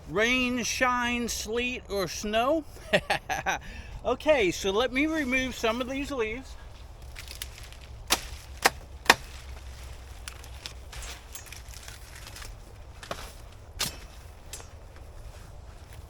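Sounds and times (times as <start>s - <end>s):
banana leaves snapping: 6.8s - 15.2s.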